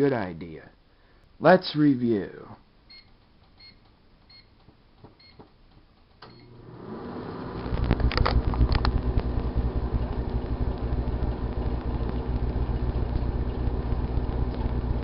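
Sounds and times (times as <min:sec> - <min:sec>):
keypad beeps: 0:02.9 - 0:04.5, 0:05.2 - 0:05.4
microwave humming: 0:06.2 - 0:15.0
sharp crackles: 0:07.6 - 0:15.0.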